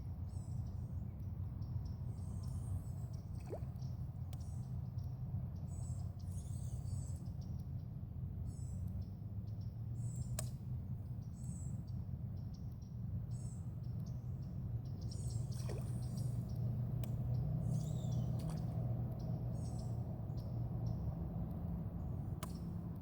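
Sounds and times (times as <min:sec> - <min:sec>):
steady low hum: 0:00.0 - 0:23.0
birds chirping: 0:11.2 - 0:23.0.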